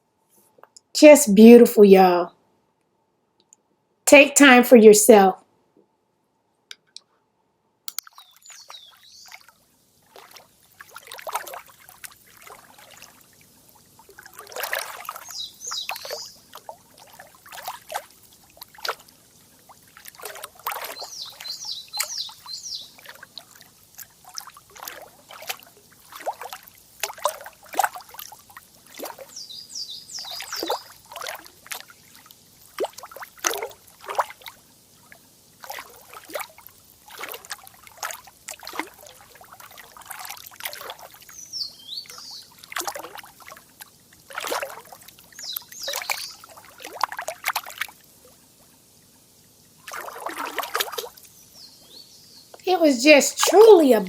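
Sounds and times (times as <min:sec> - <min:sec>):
bird chirping: 0:07.9 - 0:09.3, 0:15.3 - 0:16.4, 0:21.0 - 0:22.9, 0:29.3 - 0:30.8
water trickling and splashing: 0:07.9 - 0:54.0.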